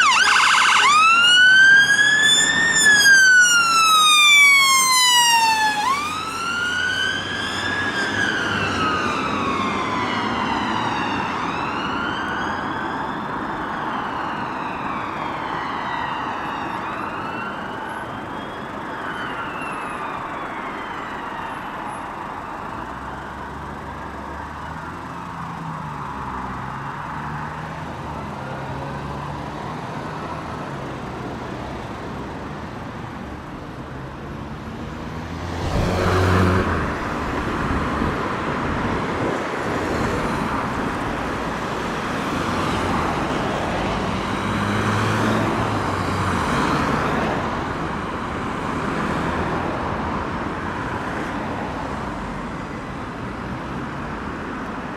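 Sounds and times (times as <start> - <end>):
siren wailing: 0.0 - 23.6
traffic and engine rumble: 0.0 - 54.9.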